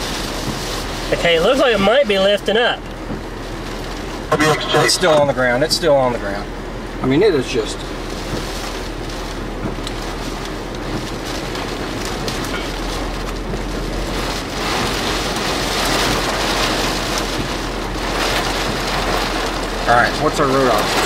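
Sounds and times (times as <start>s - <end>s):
rain and wind on a car: 0.0s - 21.0s
raindrop taps: 0.2s - 5.5s, 8.0s - 21.0s.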